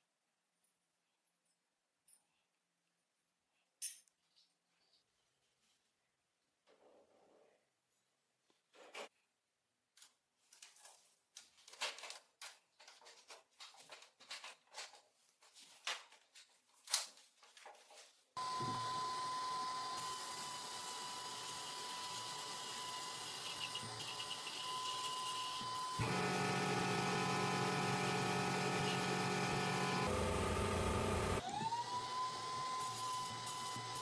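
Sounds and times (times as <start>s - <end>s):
electric power tool whining: 18.4s - 34.0s.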